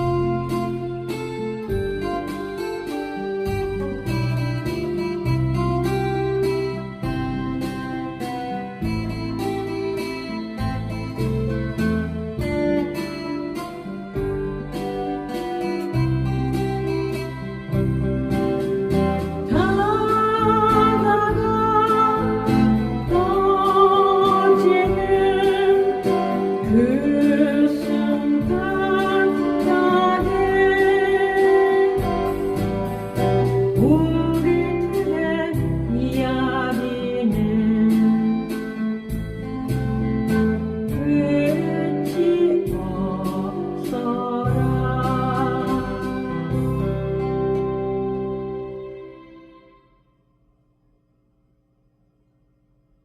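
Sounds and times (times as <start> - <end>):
strummed acoustic guitar: 0.0 - 49.8
person singing with vibrato: 19.4 - 39.2, 40.9 - 47.1.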